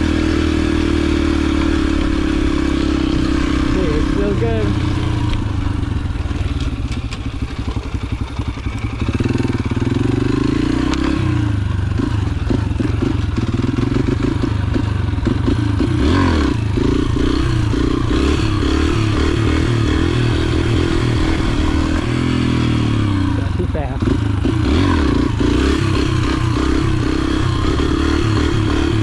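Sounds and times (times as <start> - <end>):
motorbike engine revving: 0.0 - 29.0
bike knocks and rattles: 6.0 - 9.3.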